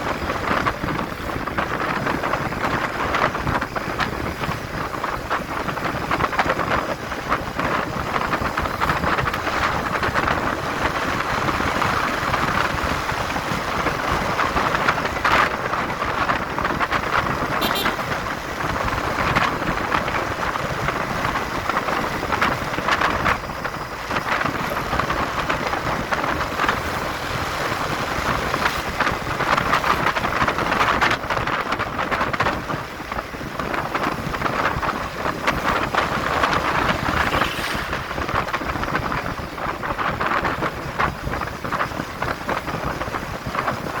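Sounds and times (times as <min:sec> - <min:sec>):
motorcycle road and engine noise: 0:00.0 - 0:44.0
wind rushing over microphone: 0:00.0 - 0:44.0.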